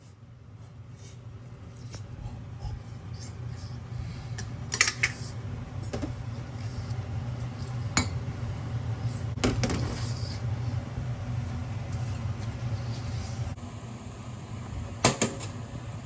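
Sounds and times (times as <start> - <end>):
utensils clinking against dishes: 4.7 - 5.2.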